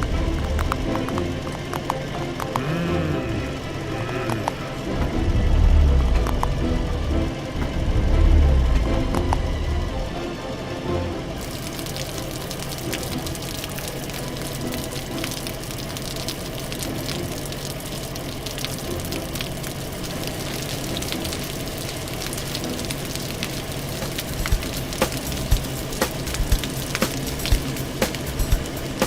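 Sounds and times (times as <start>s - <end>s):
fire crackling: 11.4s - 29.0s
hose spraying water: 11.4s - 29.0s.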